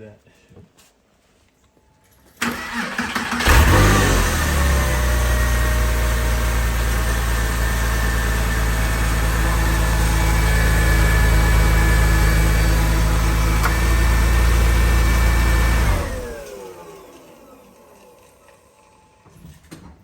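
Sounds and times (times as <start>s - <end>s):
car starter cranking: 2.4s - 5.4s, 11.6s - 16.6s
car engine idling: 2.4s - 17.8s.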